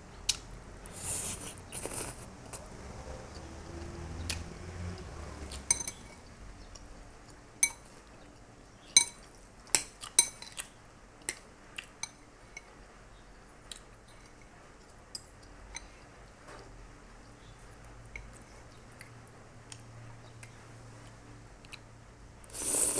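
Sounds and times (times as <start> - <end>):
cutlery clinking against dish: 5.6 - 6.2, 7.6 - 8.0, 9.0 - 10.6, 15.1 - 16.0.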